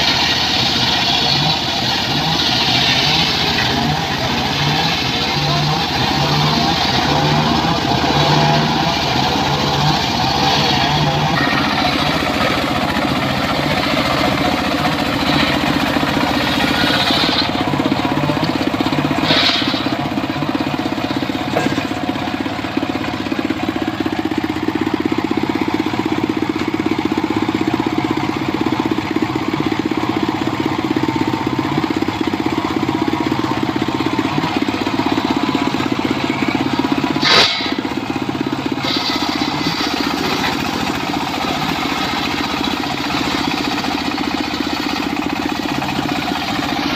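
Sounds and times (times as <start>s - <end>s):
circular saw cutting wood: 0.0s - 22.0s, 37.1s - 38.0s, 38.7s - 46.9s
short sharp noises: 37.2s - 37.9s.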